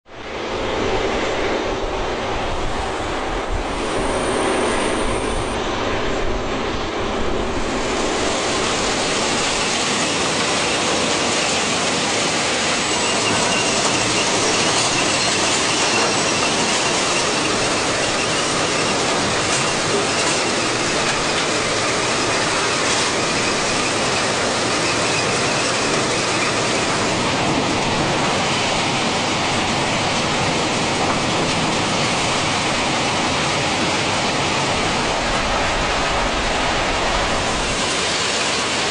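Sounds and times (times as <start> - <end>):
railroad cars rumbling on track: 0.0 - 38.9
high wheel squeal: 8.4 - 27.8
wheels clicking over rail joints: 9.3 - 36.3.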